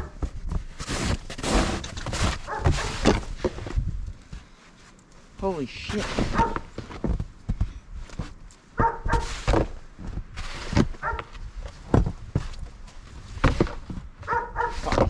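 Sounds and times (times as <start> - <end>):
snow shovel scraping snow: 0.8 - 3.5, 5.7 - 6.6, 9.2 - 9.7, 10.4 - 11.2, 14.6 - 15.0
dog barking: 2.4 - 3.0, 6.3 - 6.7, 8.8 - 9.4, 11.0 - 11.3, 14.2 - 15.0.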